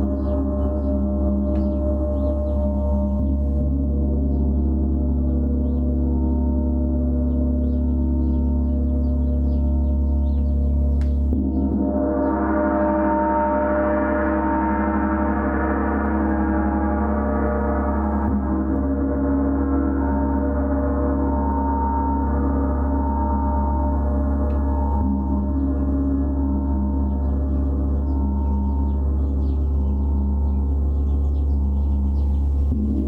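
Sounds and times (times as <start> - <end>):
gong shimmering: 0.0 - 33.0.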